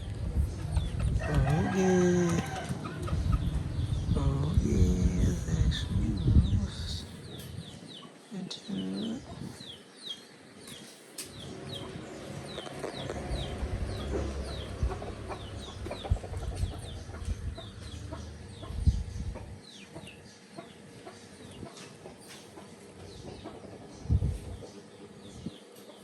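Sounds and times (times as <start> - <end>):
low rumble: 0.0 - 7.8, 11.3 - 19.6.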